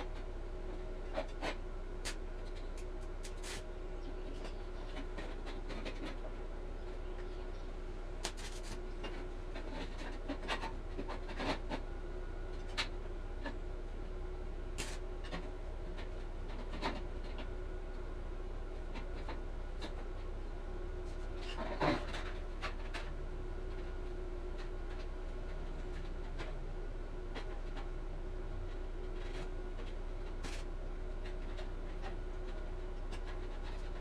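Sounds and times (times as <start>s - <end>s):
low electrical hum: 0.0s - 34.0s
scratching and rubbing strokes: 3.2s - 3.6s, 8.2s - 8.8s.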